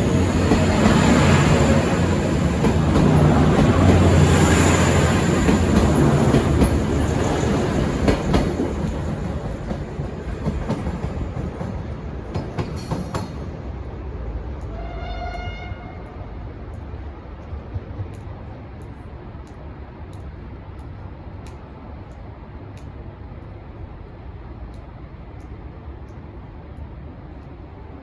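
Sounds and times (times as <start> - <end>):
wheels clicking over rail joints: 0.0 - 22.2.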